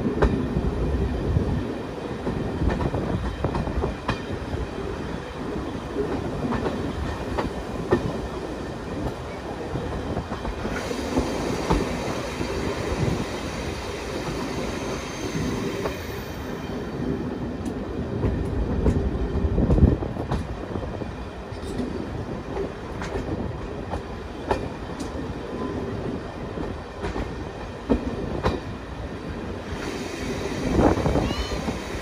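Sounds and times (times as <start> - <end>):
train wheels rumbling: 0.0 - 32.0.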